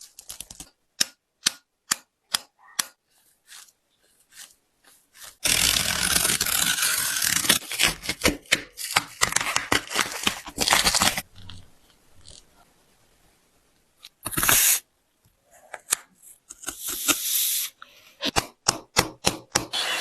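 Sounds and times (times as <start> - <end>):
shoe material tearing: 5.4 - 11.2.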